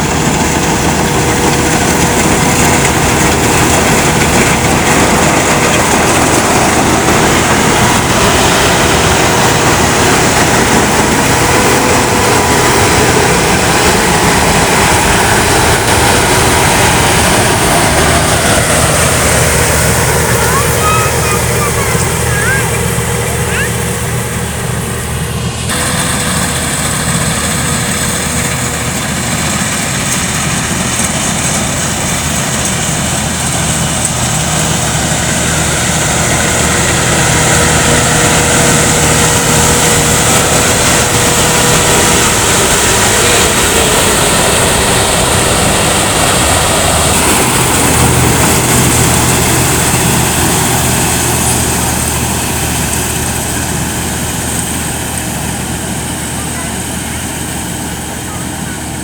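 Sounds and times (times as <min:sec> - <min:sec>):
combine harvester engine drone: 0:00.0 - 0:59.0
machinery hiss: 0:00.0 - 0:59.0.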